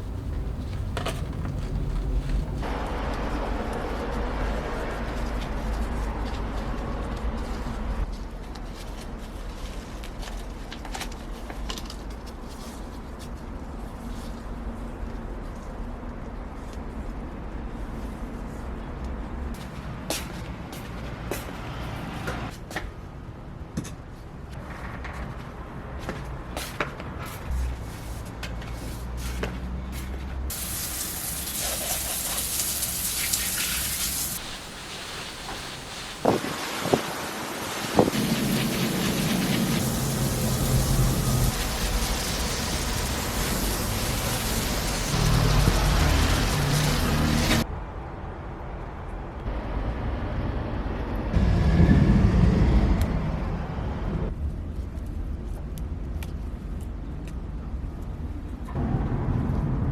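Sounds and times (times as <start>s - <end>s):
outdoor background rumble: 0.0s - 59.9s
water spraying: 30.5s - 47.7s
low hum: 49.4s - 54.8s.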